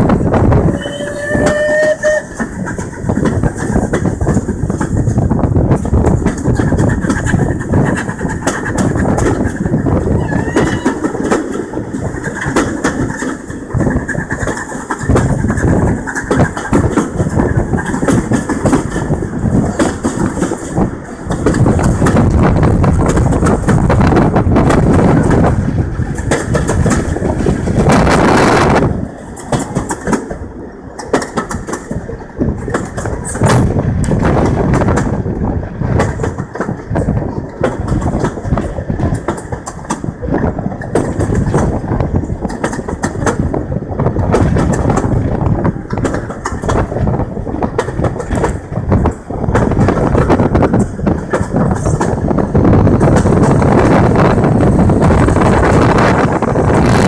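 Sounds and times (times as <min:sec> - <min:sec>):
train coaches rumbling on rails: 0:00.0 - 0:57.0
wind buffeting microphone: 0:00.0 - 0:57.0
loud rush of noise: 0:43.2 - 0:57.0.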